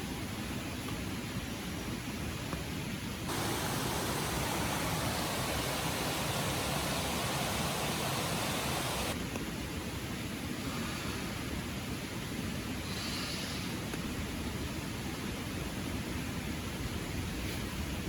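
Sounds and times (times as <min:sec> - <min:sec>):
loud hissy rush: 0:03.3 - 0:09.2
rain falling: 0:03.3 - 0:09.2
river rushing: 0:03.3 - 0:09.2.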